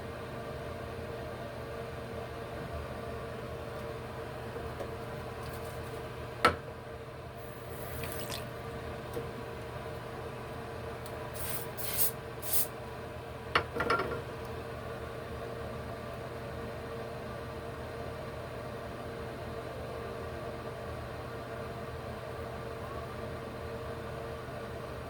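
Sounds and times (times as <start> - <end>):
spray bottle hissing: 11.4 - 12.7.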